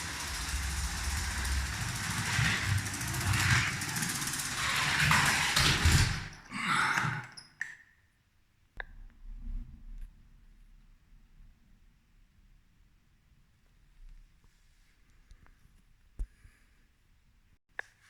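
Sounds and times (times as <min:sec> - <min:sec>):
toy train rattling on track: 0:00.0 - 0:07.3.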